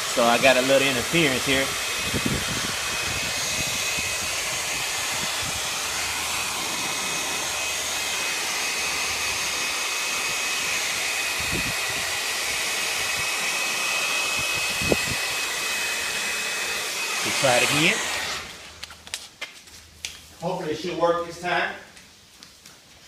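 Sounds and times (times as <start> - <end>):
hair dryer blowing: 0.0 - 18.9
wind buffeting microphone: 1.0 - 7.5, 11.4 - 12.2, 14.4 - 15.3.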